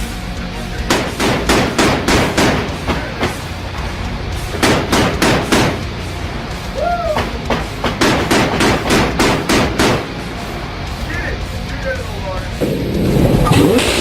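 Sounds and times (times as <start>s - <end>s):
steady low rumble: 0.0s - 14.0s
chain gun firing: 0.9s - 2.8s, 4.6s - 5.8s, 7.9s - 10.1s.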